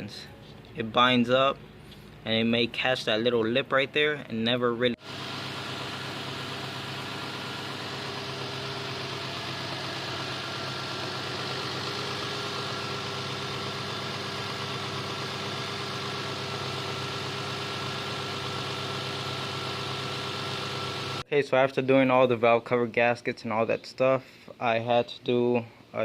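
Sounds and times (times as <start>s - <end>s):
motor running drone: 5.0s - 21.2s.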